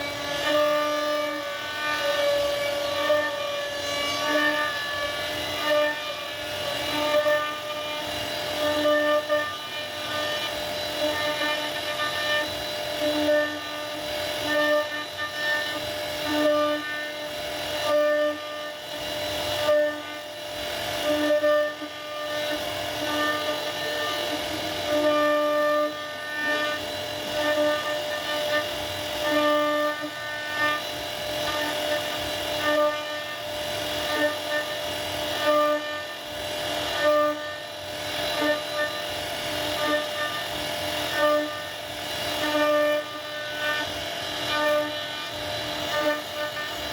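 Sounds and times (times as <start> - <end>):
hiss of bit cutting wood: 0.0 - 46.9
router spindle whining: 0.0 - 46.9.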